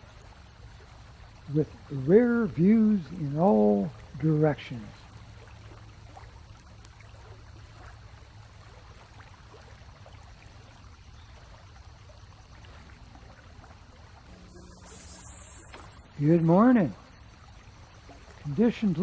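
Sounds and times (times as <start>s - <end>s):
low electrical hum: 0.0s - 6.9s, 14.2s - 19.0s
faint water sound: 0.0s - 19.0s
small ticks and splashes: 0.0s - 19.0s.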